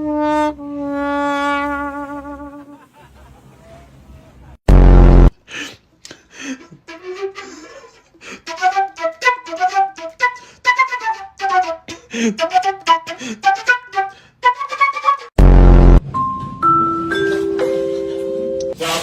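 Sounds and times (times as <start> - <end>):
flute-like wind instrument tune: 6.9 - 7.8, 8.4 - 15.3.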